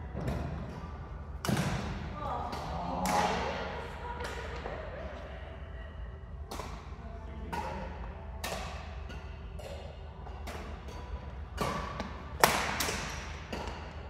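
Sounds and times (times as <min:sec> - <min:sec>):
faint voices in a large hall: 0:00.0 - 0:14.0
racquets hitting shuttlecock: 0:01.4 - 0:03.5, 0:06.5 - 0:14.0.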